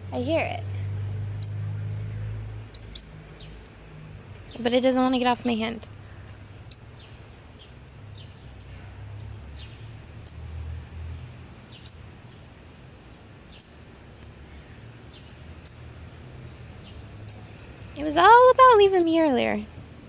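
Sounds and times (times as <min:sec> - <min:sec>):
young bird chirping: 0:00.0 - 0:00.2, 0:01.0 - 0:01.8, 0:02.7 - 0:03.6, 0:04.2 - 0:05.5, 0:06.1 - 0:08.9, 0:10.0 - 0:10.5, 0:11.7 - 0:12.2, 0:13.0 - 0:13.8, 0:15.5 - 0:15.9, 0:16.7 - 0:17.5, 0:18.9 - 0:19.8.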